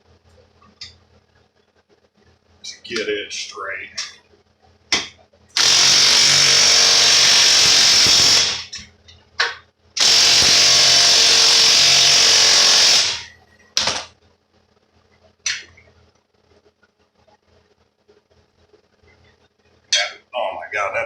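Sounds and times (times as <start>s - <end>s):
impact driver driving screws: 5.6s - 8.7s, 10.0s - 14.0s.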